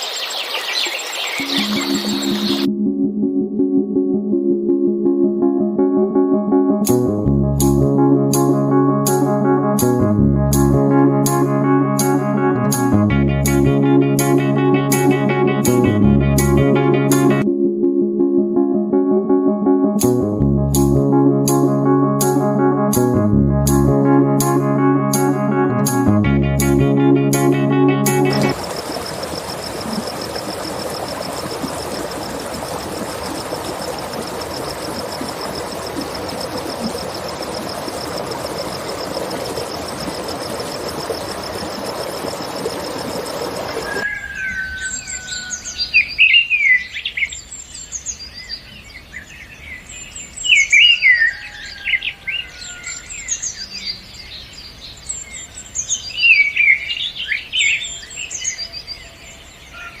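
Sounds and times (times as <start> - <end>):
birdsong chirps and whistles: 0.0 - 2.7, 34.1 - 60.0
high pulsing trill: 1.4 - 5.2
steady rushing background: 27.5 - 44.0.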